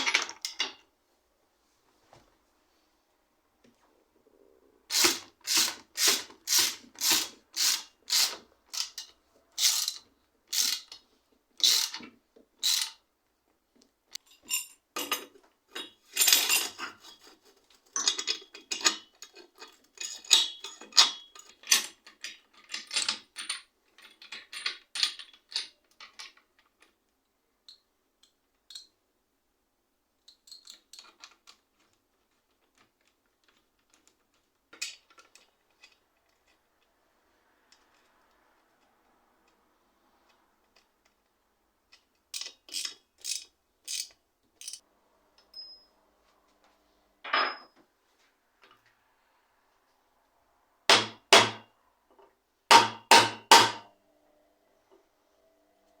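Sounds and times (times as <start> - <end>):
clicks and scrapes of tools: 4.9 - 11.0, 11.6 - 13.0, 14.1 - 27.0, 30.2 - 37.0, 40.2 - 44.8.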